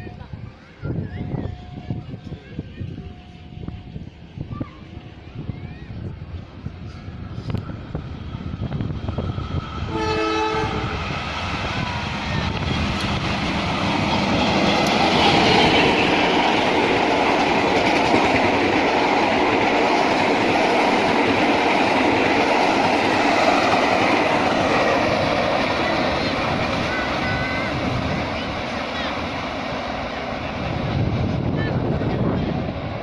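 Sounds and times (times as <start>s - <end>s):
train passing on rails: 0.0s - 33.0s
train horn: 9.8s - 11.1s.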